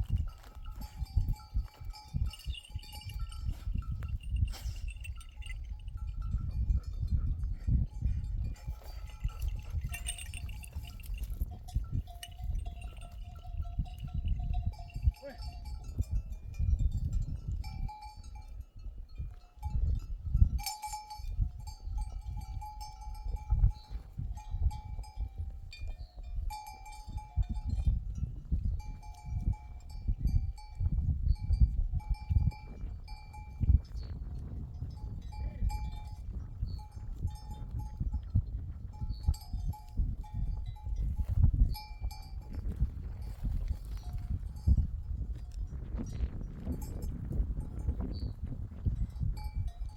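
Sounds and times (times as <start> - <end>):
low gusty rumble: 0.0 - 49.9
sheep bells clanking: 0.0 - 49.9.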